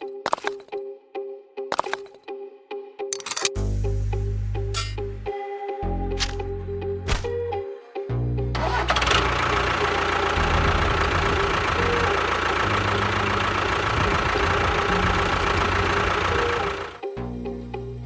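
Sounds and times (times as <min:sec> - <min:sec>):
small motor rattling: 0:08.6 - 0:17.0.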